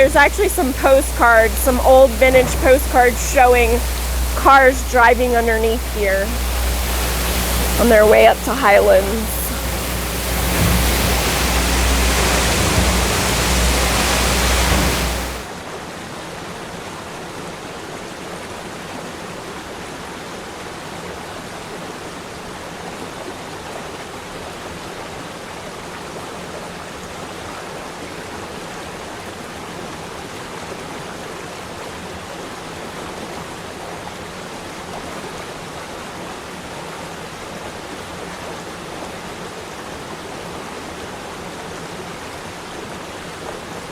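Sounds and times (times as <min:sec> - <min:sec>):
waterfall rushing: 0:00.0 - 0:15.5.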